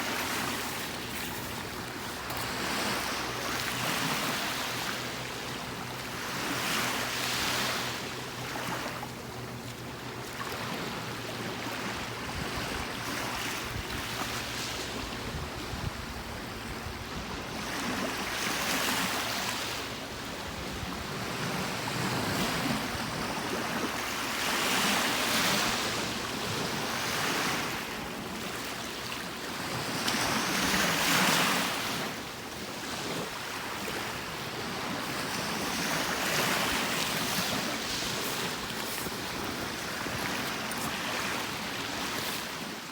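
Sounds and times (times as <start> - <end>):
ocean waves breaking on beach: 0.0 - 42.9.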